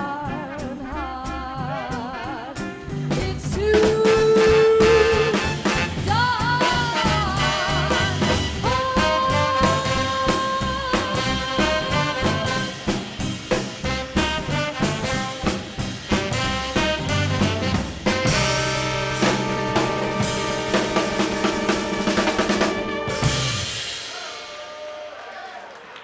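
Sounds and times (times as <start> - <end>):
upright bass: 0.0 - 23.7
drums: 0.0 - 26.0
trumpet: 0.1 - 2.9, 4.0 - 13.0, 13.8 - 25.5
trombone: 0.2 - 3.0, 3.9 - 24.0
saxophones holding long notes: 16.4 - 23.7.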